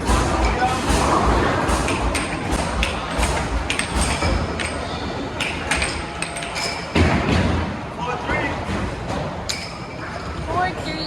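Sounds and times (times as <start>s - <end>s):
steady background din: 0.0s - 11.0s
sharp knocks and clinks: 1.7s - 7.1s.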